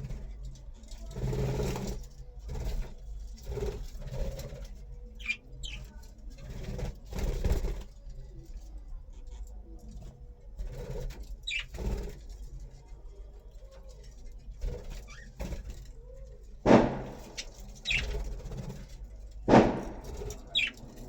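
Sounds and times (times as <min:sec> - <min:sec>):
budgies chirping: 0:03.8 - 0:06.0, 0:11.2 - 0:12.4, 0:16.9 - 0:21.0
loud thumps: 0:16.6 - 0:21.0.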